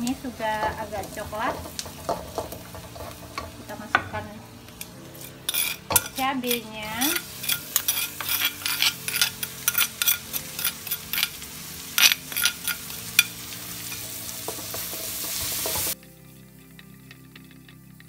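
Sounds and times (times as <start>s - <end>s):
chili paste sizzling in oil: 0.0s - 18.0s
spatula clicking and scraping: 4.7s - 15.9s.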